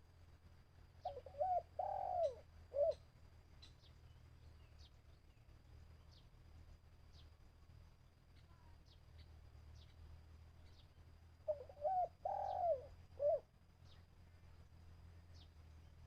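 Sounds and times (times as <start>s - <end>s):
dove cooing: 1.0s - 3.0s, 11.4s - 13.5s
small birds chirping: 1.0s - 16.0s.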